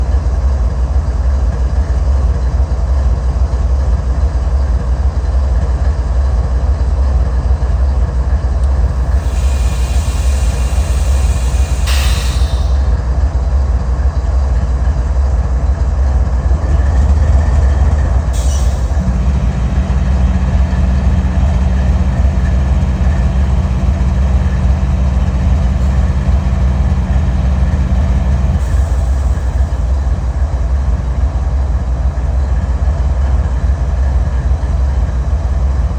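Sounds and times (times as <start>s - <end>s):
diesel locomotive rumbling: 0.0s - 35.9s
hissing burst: 9.0s - 13.0s.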